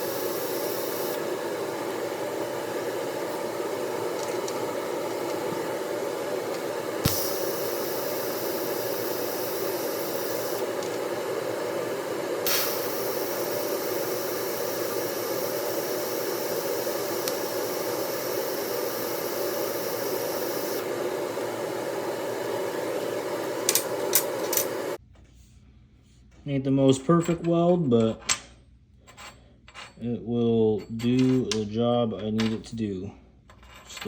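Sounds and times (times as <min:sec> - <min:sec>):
welding hum and hiss: 0:00.0 - 0:25.0.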